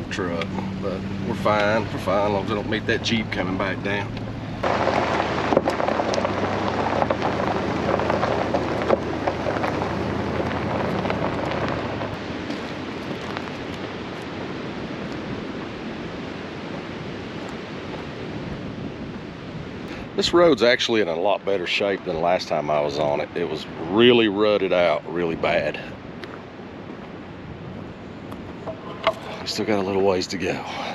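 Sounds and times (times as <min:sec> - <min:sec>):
low engine hum: 0:00.0 - 0:20.0
tyres crunching on gravel: 0:00.0 - 0:23.2, 0:24.7 - 0:30.9.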